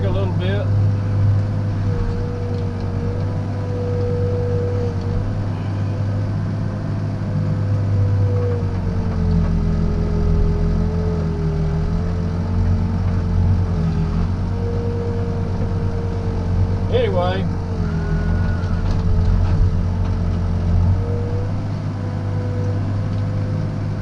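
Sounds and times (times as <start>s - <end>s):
diesel engine running: 0.0s - 24.0s
steady whine: 0.0s - 24.0s.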